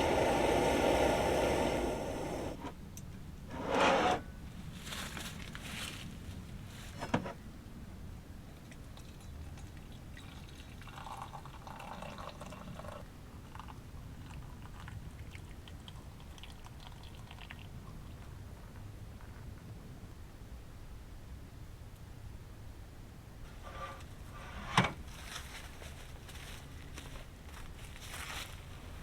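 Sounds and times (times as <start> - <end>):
hot water pouring into mug: 9.2 - 18.2.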